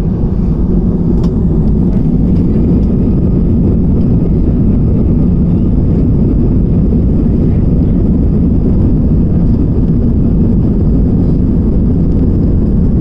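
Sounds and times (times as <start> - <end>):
rushing air: 0.0 - 7.2
airliner engines rumbling: 0.0 - 13.0.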